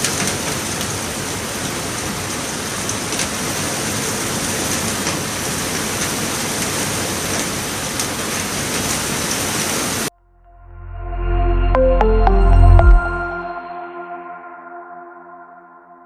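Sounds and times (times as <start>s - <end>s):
heavy rain pouring: 0.0s - 10.1s.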